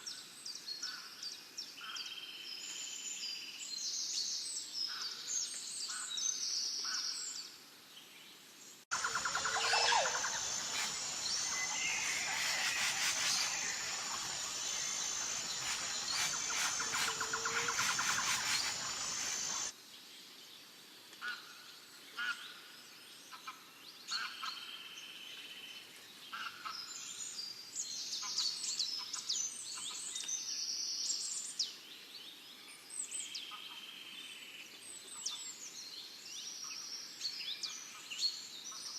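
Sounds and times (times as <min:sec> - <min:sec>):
dense birdsong: 0:08.9 - 0:19.7
small birds chirping: 0:08.9 - 0:19.7
steady hiss: 0:08.9 - 0:19.7.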